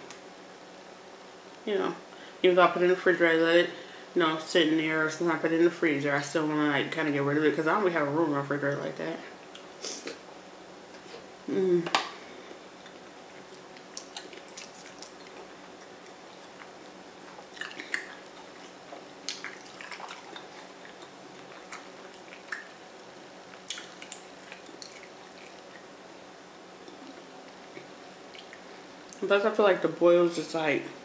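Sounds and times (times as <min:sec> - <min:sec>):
faint steady hum: 0:00.0 - 0:31.0
wet chewing smacks: 0:12.8 - 0:25.9, 0:26.8 - 0:29.2.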